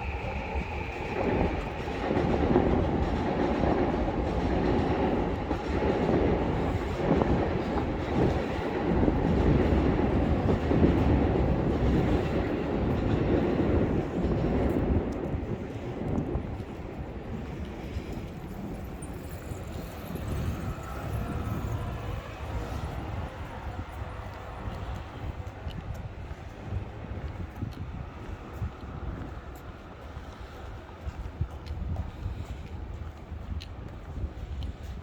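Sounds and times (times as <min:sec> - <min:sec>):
train wheels on track: 0:00.0 - 0:35.0.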